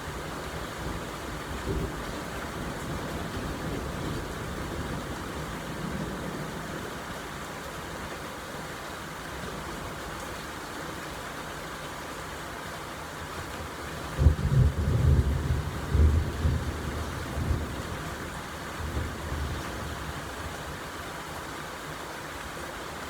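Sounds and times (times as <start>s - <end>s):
steady rain falling: 0.0s - 23.0s
distant thunder rumble: 14.2s - 20.1s.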